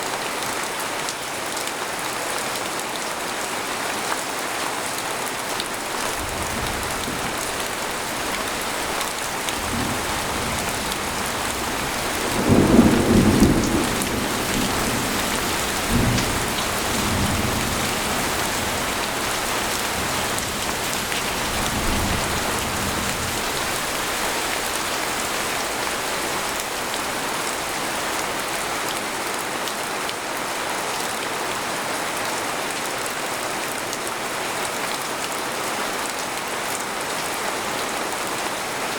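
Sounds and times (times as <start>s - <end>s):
rain falling on a tent: 0.0s - 38.9s
thunder rumbling: 5.9s - 28.5s.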